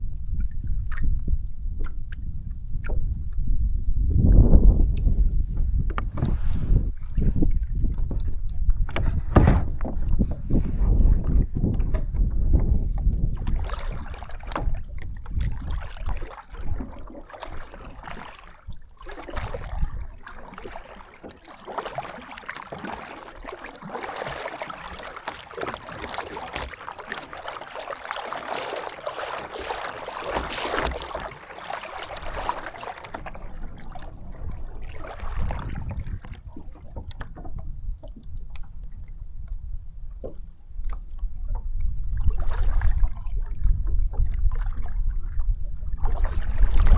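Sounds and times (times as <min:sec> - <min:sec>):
wind buffeting microphone: 0:00.0 - 0:21.0, 0:32.0 - 0:46.9
water splashing around a canoe: 0:00.0 - 0:46.9.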